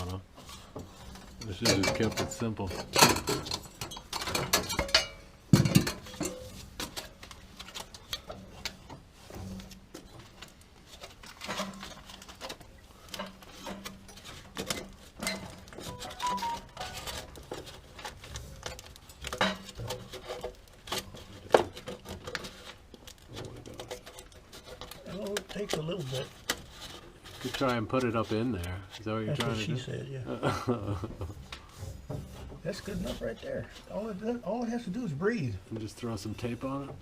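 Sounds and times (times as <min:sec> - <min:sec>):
metal pipe clanks and knocks: 0:01.2 - 0:06.5.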